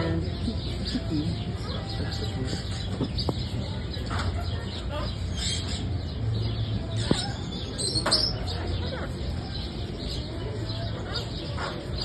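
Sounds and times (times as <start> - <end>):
murmur of voices: 0.0 - 12.0
parrots chirping and calling: 0.0 - 12.0.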